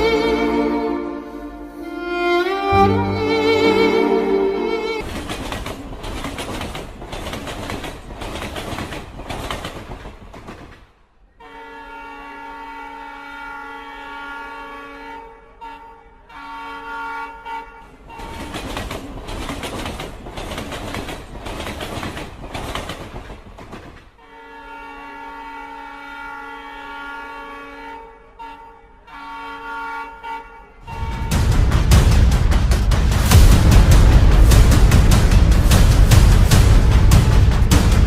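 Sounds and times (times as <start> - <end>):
loud music: 0.0 - 5.0, 30.9 - 38.0
train horn blasts: 0.4 - 5.0, 11.4 - 18.2, 24.2 - 31.4
passing train rattle and rumble: 4.9 - 11.3, 17.8 - 24.2, 30.8 - 38.0.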